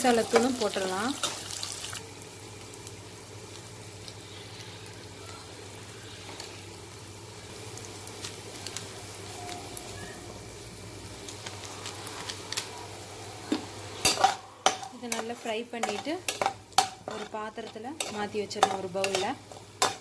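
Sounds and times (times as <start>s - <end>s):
eggs sizzling in oil: 0.0s - 20.0s.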